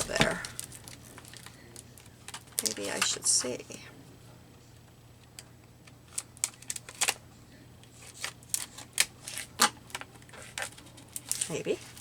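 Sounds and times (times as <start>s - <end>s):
hands prying at plastic: 0.0s - 0.6s.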